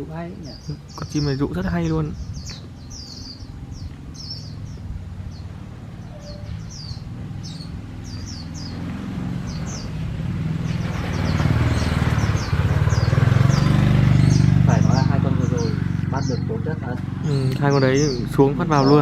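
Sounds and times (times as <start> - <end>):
low engine rumble: 0.0 - 19.0
bird chirping high quick calls: 0.4 - 10.0.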